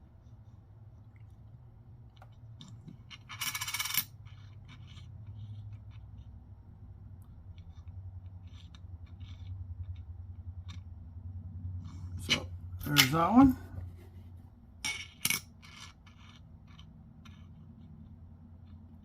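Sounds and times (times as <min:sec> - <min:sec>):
low steady hum: 0:00.0 - 0:19.0
coins clicking on surface: 0:03.1 - 0:05.0.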